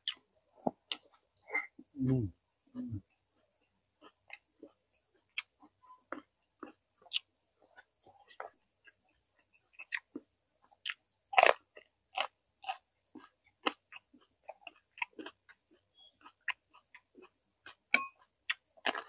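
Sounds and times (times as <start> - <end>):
crunchy vegetable chewing: 4.0 - 17.8, 18.4 - 19.0.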